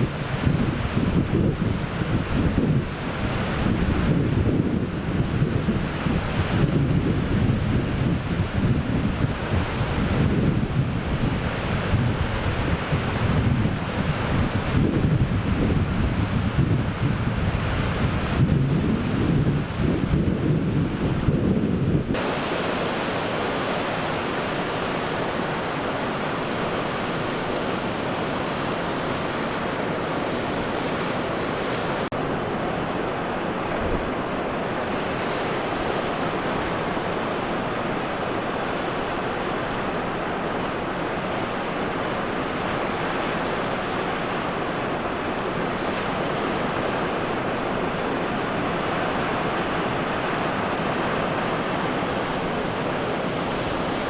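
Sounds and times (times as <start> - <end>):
wind on microphone: 0.0 - 54.0
surf breaking on beach: 22.0 - 54.0.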